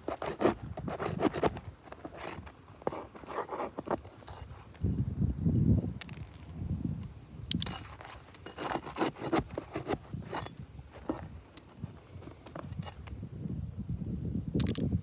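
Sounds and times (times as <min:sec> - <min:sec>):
shingles scraping: 0:00.0 - 0:04.7, 0:07.6 - 0:13.0.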